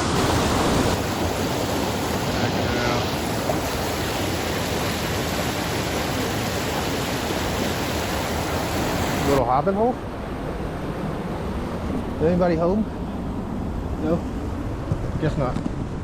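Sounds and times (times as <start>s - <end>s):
water rushing over rocks: 0.0s - 9.4s.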